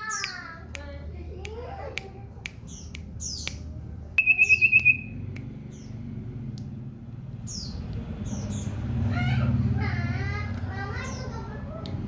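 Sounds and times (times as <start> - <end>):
bird trilling and chirping: 0.0 - 0.6, 2.6 - 6.2, 7.3 - 9.4.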